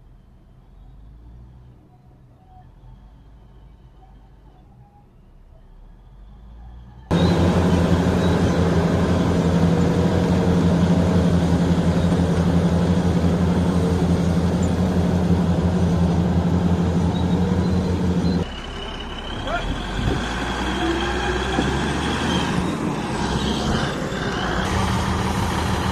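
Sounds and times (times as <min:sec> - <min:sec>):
diesel engine throbbing: 0:05.8 - 0:25.9.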